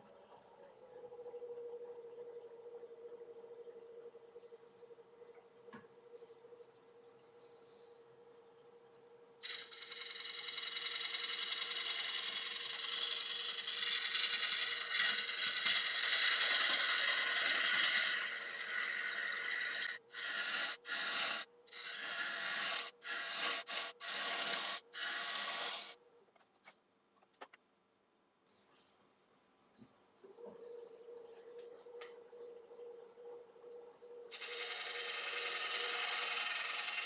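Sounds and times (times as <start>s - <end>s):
lathe humming: 9.4s - 26.0s, 34.3s - 37.0s
lathe tool cutting wood: 9.4s - 26.0s, 34.3s - 37.0s.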